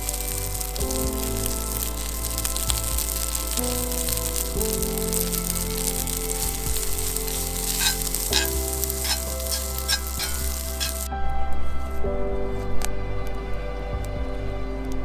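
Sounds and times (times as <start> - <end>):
food sizzling in a pan: 0.0 - 11.1
background music: 0.0 - 15.0.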